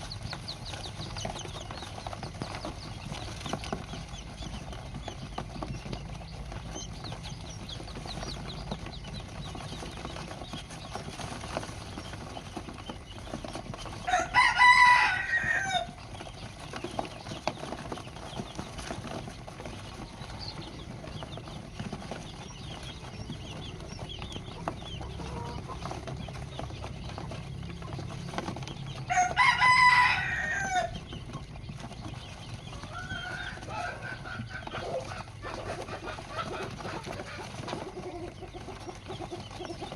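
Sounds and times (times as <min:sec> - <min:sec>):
rooster crowing: 0:13.9 - 0:16.0, 0:29.0 - 0:31.0, 0:32.7 - 0:35.1.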